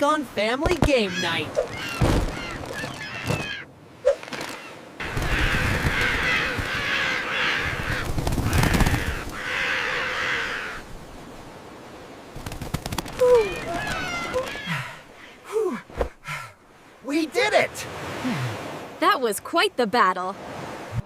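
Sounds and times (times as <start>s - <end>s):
seagulls squawking: 0.9s - 10.8s, 13.3s - 15.4s.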